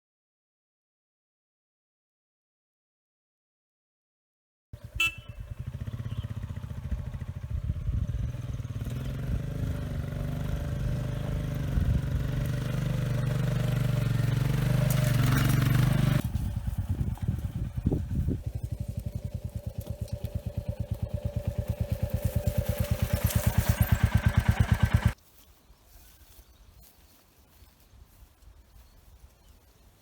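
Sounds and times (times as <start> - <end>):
vehicle engine pulsing: 4.8 - 25.2.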